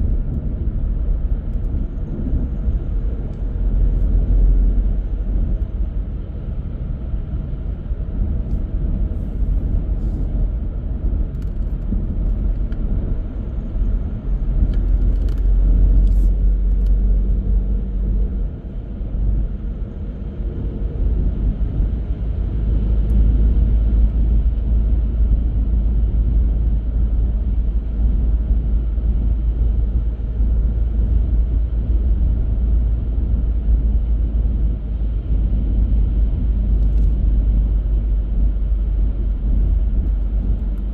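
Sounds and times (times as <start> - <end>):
car engine and tyre rumble: 0.0 - 40.9.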